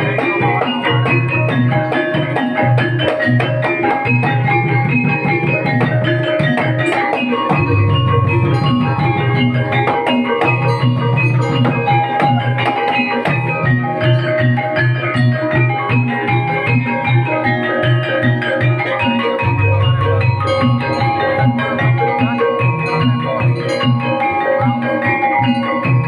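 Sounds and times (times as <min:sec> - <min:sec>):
tuned metal percussion melody: 0:00.0 - 0:26.0
low drum beat: 0:19.4 - 0:24.0.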